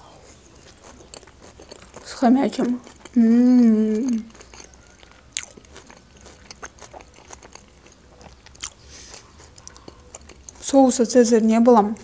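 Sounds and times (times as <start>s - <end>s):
person chewing salad: 0.0s - 12.0s.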